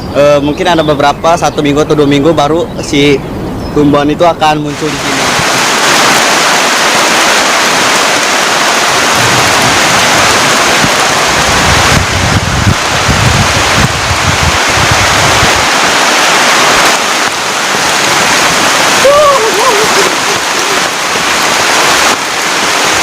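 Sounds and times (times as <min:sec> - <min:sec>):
heavy rain pouring: 0:04.7 - 0:23.0
low rumbling: 0:04.7 - 0:23.0.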